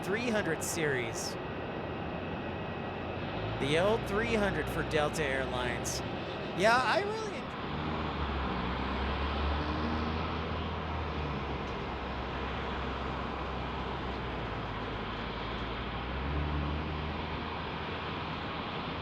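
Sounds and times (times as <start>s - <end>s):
jet engine rumble and hiss: 0.0s - 3.3s.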